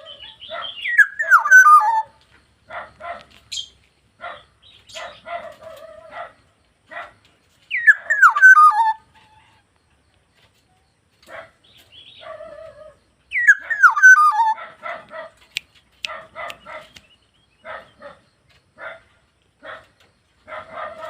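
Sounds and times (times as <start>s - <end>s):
bird descending slurred calls: 0.0s - 2.1s, 7.7s - 9.0s, 12.5s - 14.6s
bird raspy chattering notes: 0.0s - 2.1s, 7.7s - 9.4s, 13.3s - 14.6s.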